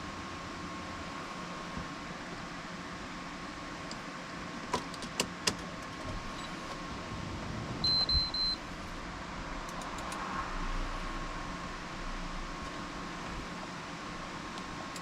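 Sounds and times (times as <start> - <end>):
faint hum: 5.9 - 15.0
electronic beep pips: 7.8 - 8.6
sharp clicks: 9.7 - 10.2.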